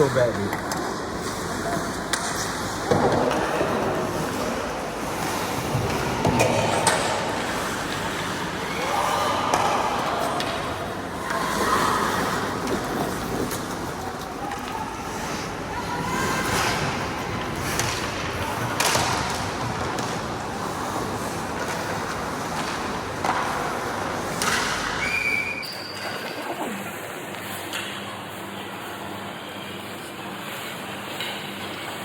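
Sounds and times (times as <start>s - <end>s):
hockey sticks and puck clacking: 17.6s - 24.9s.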